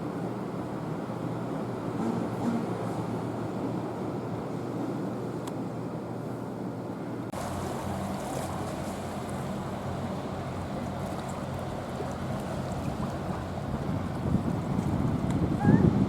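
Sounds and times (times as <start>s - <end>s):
rushing wind and water: 0.0s - 16.0s
ship diesel engines humming: 0.0s - 16.0s.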